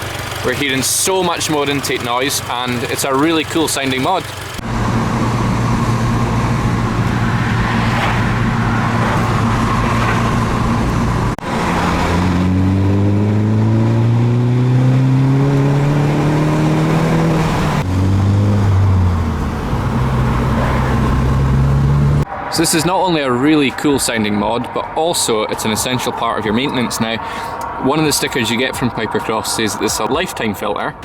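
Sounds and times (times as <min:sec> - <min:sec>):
engine intake noise: 0:00.0 - 0:11.7
car engine accelerating: 0:00.0 - 0:22.4.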